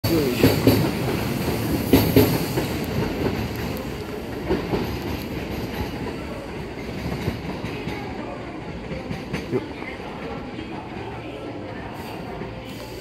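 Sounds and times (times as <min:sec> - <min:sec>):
train rumble: 0:00.0 - 0:13.0
train wheels clacking over rail joints: 0:00.2 - 0:08.2.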